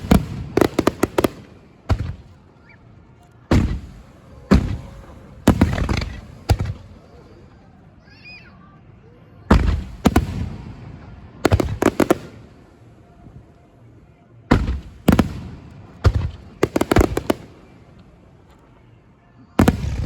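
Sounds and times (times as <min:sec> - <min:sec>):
firework shells booming: 0:00.0 - 0:02.4, 0:03.5 - 0:06.9, 0:14.5 - 0:17.5.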